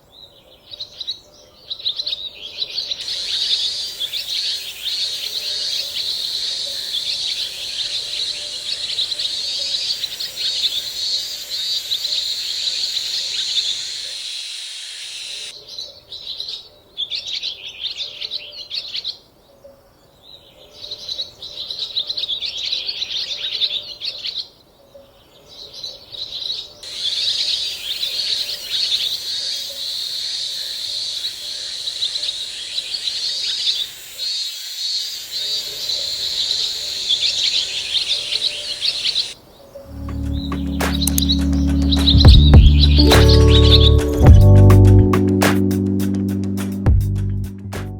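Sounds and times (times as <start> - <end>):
high-pitched bird chirping: 39.9 - 45.3.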